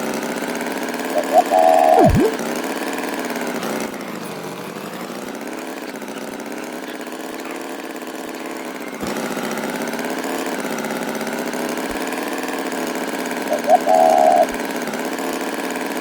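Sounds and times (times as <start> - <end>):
small engine droning: 4.0 - 15.9.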